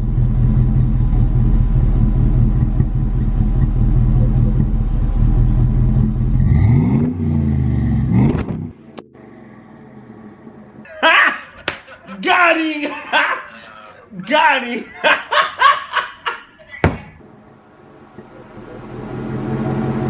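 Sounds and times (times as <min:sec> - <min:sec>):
car engine idling and revving: 0:00.0 - 0:10.9, 0:17.2 - 0:20.0.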